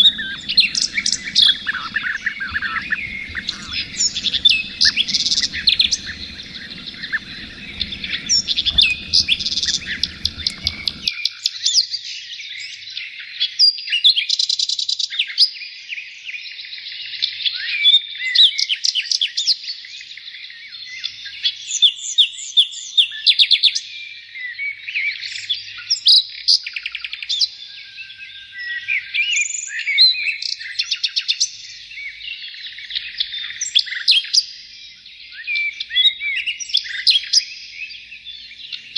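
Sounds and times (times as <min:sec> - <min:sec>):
low background rumble: 0:00.0 - 0:11.1
songbirds singing: 0:00.0 - 0:11.1.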